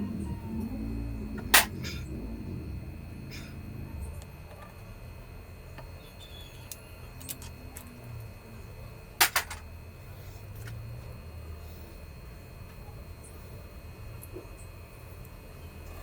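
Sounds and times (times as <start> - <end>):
low hum: 0.0 - 13.3
metal tools and parts clinking: 6.7 - 7.9, 9.2 - 9.6.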